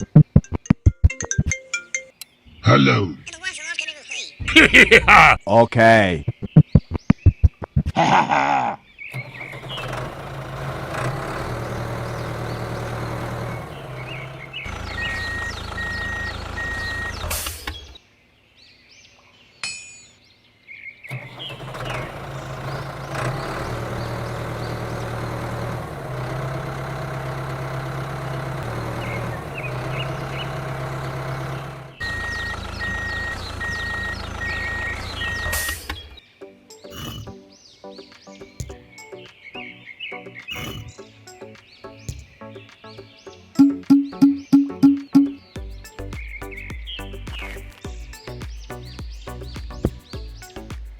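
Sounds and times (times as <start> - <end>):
bird-like chirps: 6.2 - 7.8, 11.7 - 21.6, 32.0 - 50.9
vehicle engine humming: 9.1 - 18.0, 21.1 - 36.2, 43.6 - 50.7
reversing beeps: 14.9 - 17.2, 32.0 - 35.8, 43.6 - 45.4.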